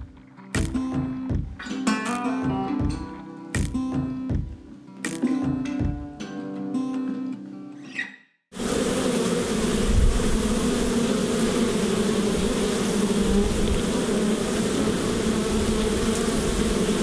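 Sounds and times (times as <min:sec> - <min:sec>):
honey bees buzzing: 0:08.6 - 0:17.0.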